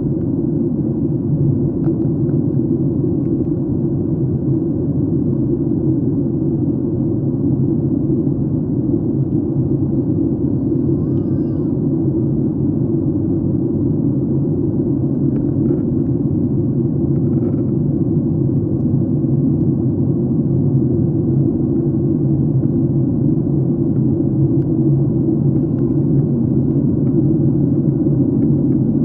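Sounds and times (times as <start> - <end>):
airplane cabin rumble: 0.0 - 29.0.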